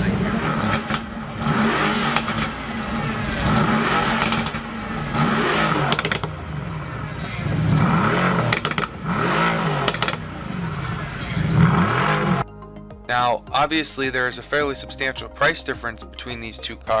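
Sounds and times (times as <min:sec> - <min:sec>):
exhaust pops: 0:00.0 - 0:12.4
car engine revving: 0:00.0 - 0:12.5.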